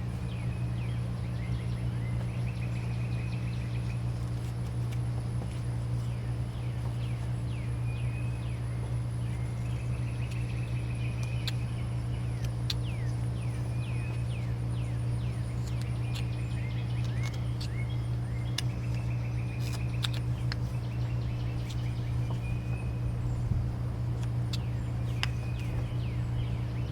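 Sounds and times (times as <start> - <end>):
low hum: 0.0 - 26.9
knife cutting wood clicks: 15.6 - 17.8, 18.4 - 20.7.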